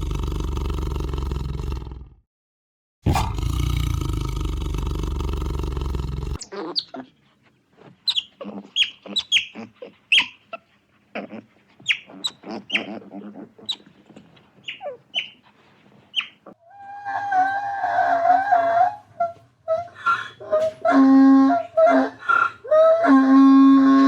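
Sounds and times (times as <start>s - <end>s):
high-pitched animal calls: 6.4s - 7.2s, 7.8s - 15.5s, 16.1s - 24.0s.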